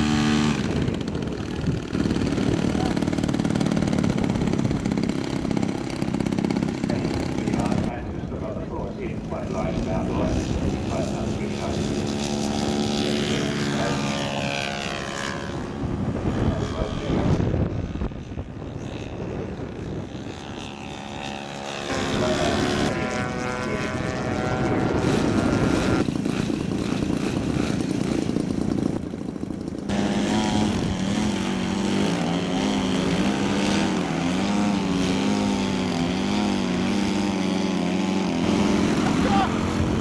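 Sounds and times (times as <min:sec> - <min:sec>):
model aircraft engine droning: 0:00.0 - 0:40.0.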